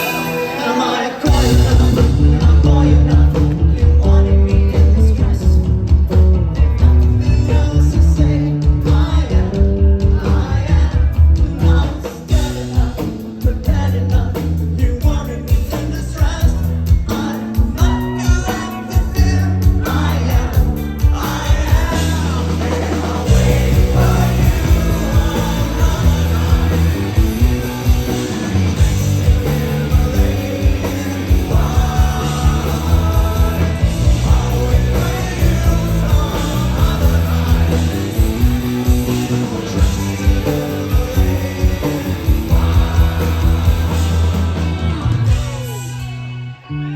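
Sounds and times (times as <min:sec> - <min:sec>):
bass: 0:00.0 - 0:46.9
drums: 0:00.0 - 0:46.9
electric guitars: 0:00.0 - 0:46.9
person singing: 0:00.0 - 0:46.9.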